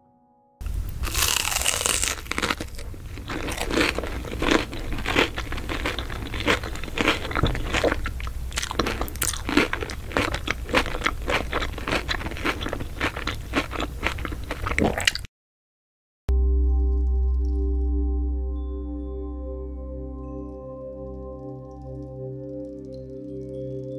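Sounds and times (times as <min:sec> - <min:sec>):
low steady hum: 0:00.6 - 0:14.7, 0:16.3 - 0:23.8
chewing close to microphone: 0:00.9 - 0:15.3
crisp crunching of toast: 0:00.9 - 0:15.3.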